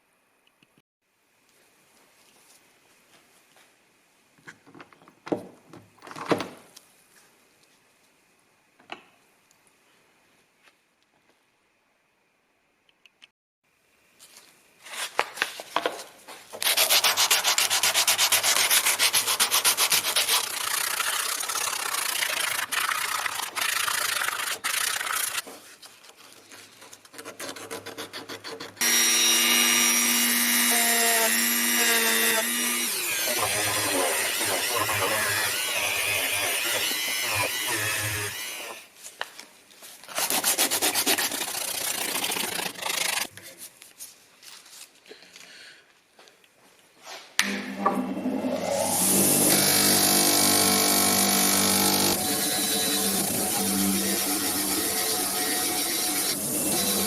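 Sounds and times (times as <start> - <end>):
scrubbing metal with sandpaper: 16.6 - 25.4, 26.6 - 28.8, 40.1 - 43.3.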